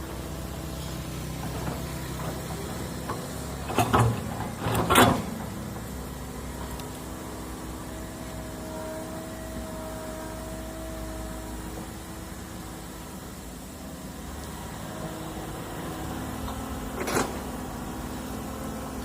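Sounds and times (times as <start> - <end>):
diesel engine running: 0.0 - 19.0
faint steady whine: 5.3 - 19.0.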